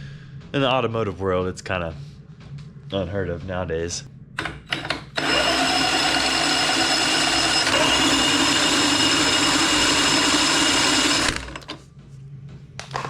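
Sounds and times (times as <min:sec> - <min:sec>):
power drill whining: 0:04.7 - 0:11.8.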